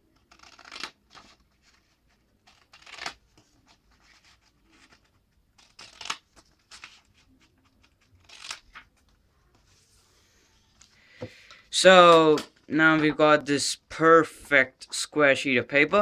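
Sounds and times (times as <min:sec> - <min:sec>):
scissors snipping paper: 0:00.2 - 0:01.4, 0:02.4 - 0:03.2, 0:05.6 - 0:07.1, 0:07.8 - 0:08.8.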